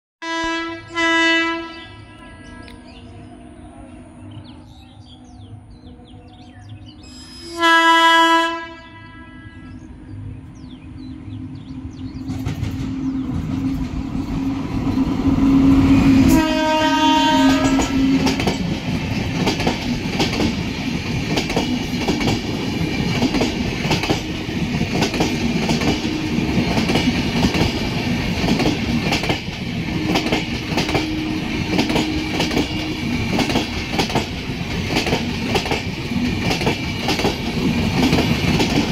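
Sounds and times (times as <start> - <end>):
train horn blasts: 0.2 - 2.8, 7.1 - 9.8, 15.4 - 18.4
train rumble: 2.0 - 38.9
wheels clacking over rail joints: 17.4 - 38.9.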